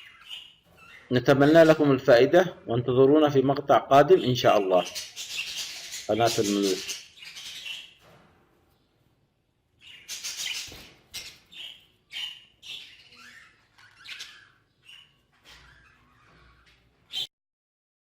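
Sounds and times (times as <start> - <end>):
budgerigars chirping: 0.0 - 8.0, 9.8 - 17.3.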